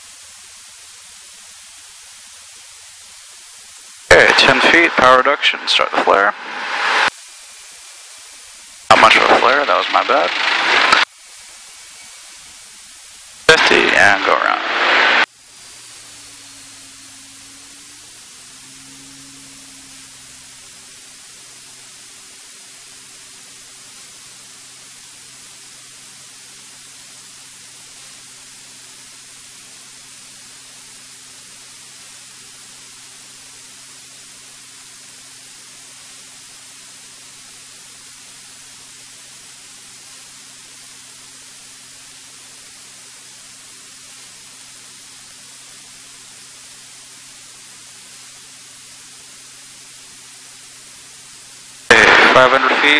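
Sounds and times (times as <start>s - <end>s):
intercom audio hiss: 3.2s - 52.9s
faint piston engine hum: 15.2s - 52.9s.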